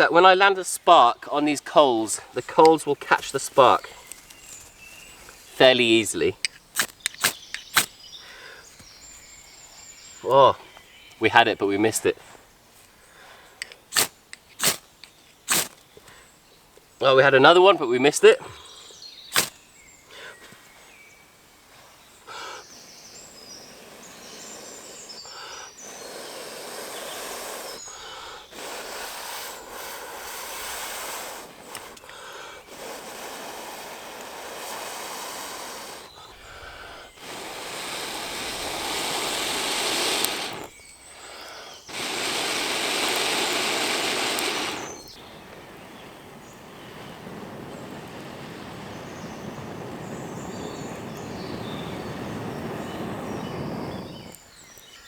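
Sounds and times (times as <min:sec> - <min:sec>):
person blowing on ember: 0:06.7 - 0:08.7, 0:13.9 - 0:14.8, 0:15.5 - 0:15.8, 0:19.3 - 0:20.3, 0:22.3 - 0:54.4.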